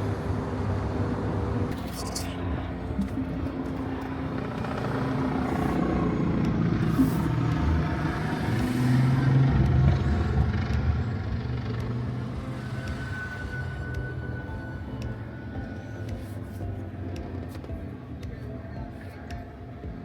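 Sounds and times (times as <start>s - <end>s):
vehicle passing by: 2.7s - 14.3s.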